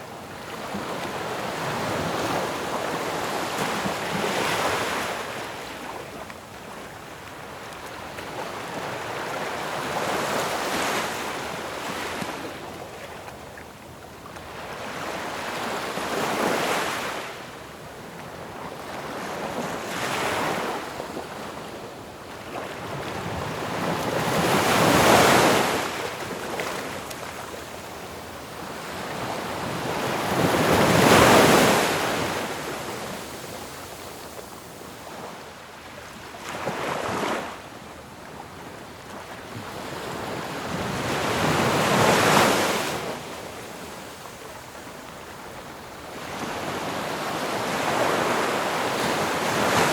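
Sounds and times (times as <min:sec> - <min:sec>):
ocean waves breaking on shore: 0:22.5 - 0:27.8, 0:28.6 - 0:37.7.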